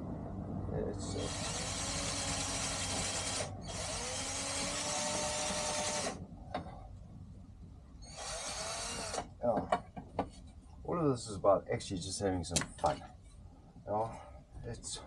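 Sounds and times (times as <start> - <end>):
power drill whirring: 1.2 - 6.2, 8.0 - 9.3.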